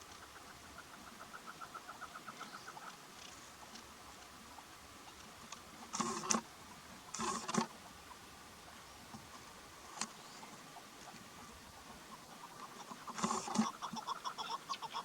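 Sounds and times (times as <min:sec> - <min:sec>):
harsh partridge calls: 0:00.0 - 0:03.0, 0:10.1 - 0:15.0
partridge clucking: 0:12.5 - 0:14.4.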